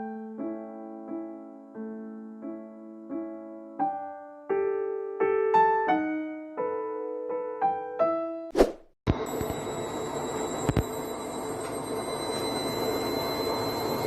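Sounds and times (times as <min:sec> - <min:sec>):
piano playing simple melody: 0:00.0 - 0:08.5.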